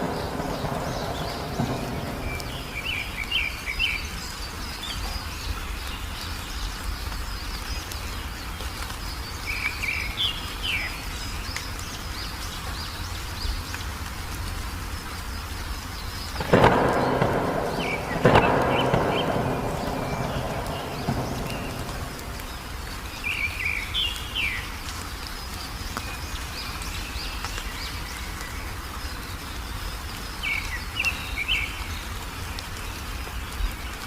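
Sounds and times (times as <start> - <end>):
low background rumble: 0.0 - 3.7, 15.9 - 23.7
songbirds chirping: 0.0 - 34.0.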